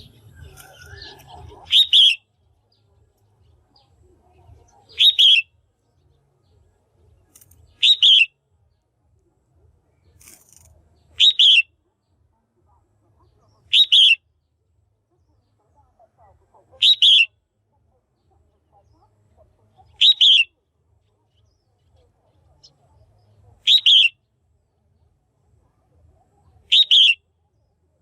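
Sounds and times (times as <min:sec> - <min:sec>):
bird double-noted chirp: 0:00.0 - 0:02.3, 0:04.8 - 0:05.5, 0:07.7 - 0:08.3, 0:11.2 - 0:11.7, 0:13.7 - 0:14.2, 0:16.8 - 0:17.3, 0:19.9 - 0:20.5, 0:23.6 - 0:24.2, 0:26.6 - 0:27.2.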